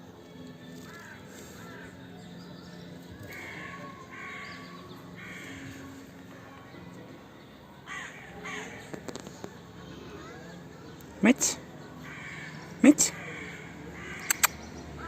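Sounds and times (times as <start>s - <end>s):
crow cawing: 7.9s - 8.8s, 12.0s - 12.6s, 13.2s - 14.5s.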